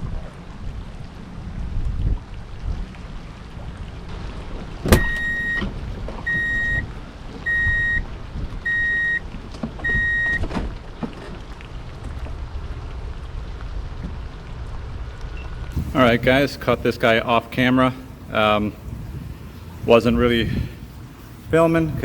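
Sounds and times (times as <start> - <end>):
wind and rain rumble: 0.0 - 22.0
high electronic beeps: 5.0 - 5.6, 6.3 - 8.0, 8.7 - 9.2, 9.8 - 10.4.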